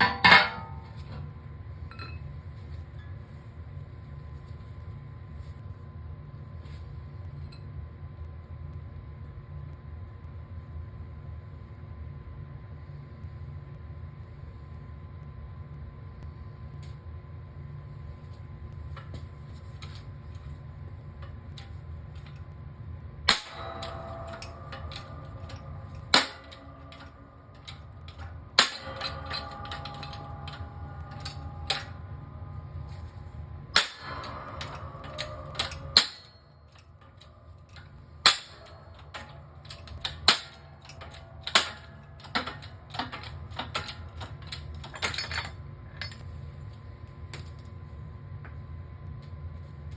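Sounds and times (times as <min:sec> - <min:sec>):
steady low hum: 0:00.0 - 0:49.9
hammer striking metal: 0:23.3 - 0:46.2.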